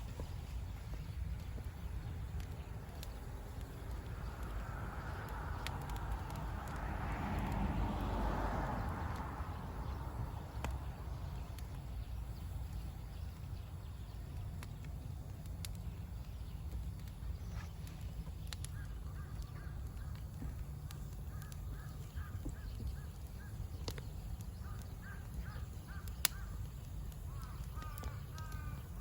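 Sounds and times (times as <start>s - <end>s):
low outdoor rumble: 0.0s - 29.0s
bird calling: 18.6s - 29.0s.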